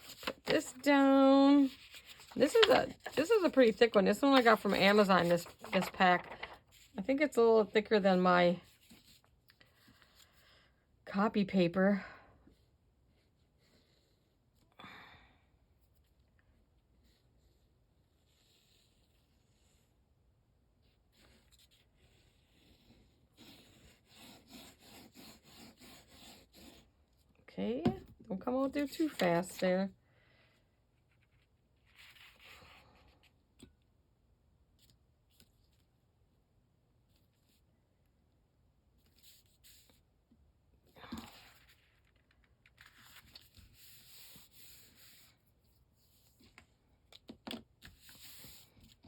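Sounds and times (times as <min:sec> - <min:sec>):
rubbing on paper: 0:22.5 - 0:26.9.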